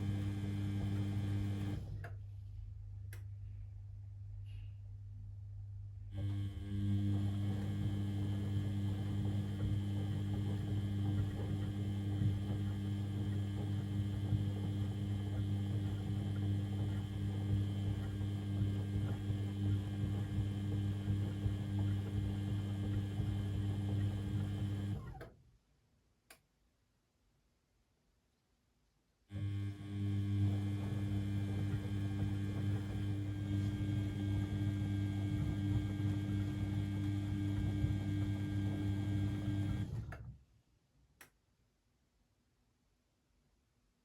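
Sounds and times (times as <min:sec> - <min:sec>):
washing machine humming: 0:00.0 - 0:02.3, 0:06.1 - 0:25.3, 0:29.3 - 0:40.5.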